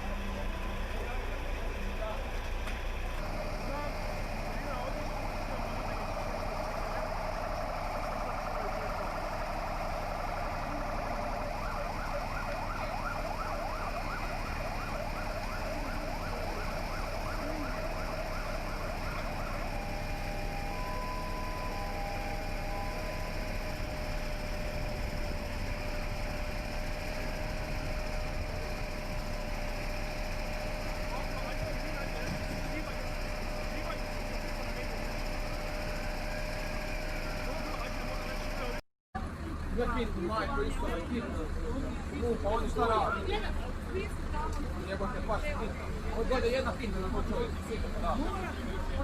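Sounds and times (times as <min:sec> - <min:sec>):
electronic alarm warbling: 0:06.7 - 0:24.0.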